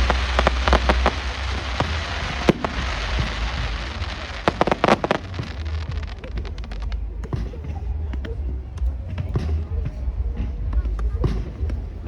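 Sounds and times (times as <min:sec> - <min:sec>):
hissing: 0:00.0 - 0:06.9
low rumble: 0:00.0 - 0:09.0
fireworks crackling and popping: 0:00.0 - 0:12.0.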